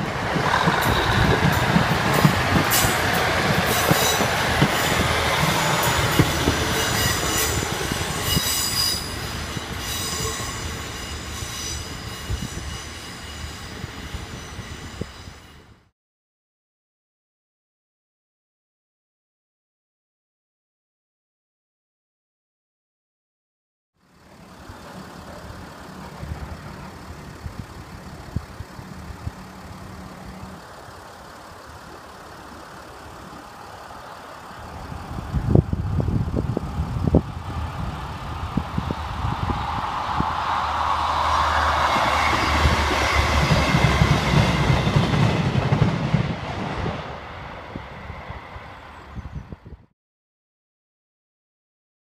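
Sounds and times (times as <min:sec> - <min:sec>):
train wheels clacking: 0:00.0 - 0:15.4, 0:40.7 - 0:46.7
diesel train rumbling past: 0:00.0 - 0:15.9, 0:24.0 - 0:49.9.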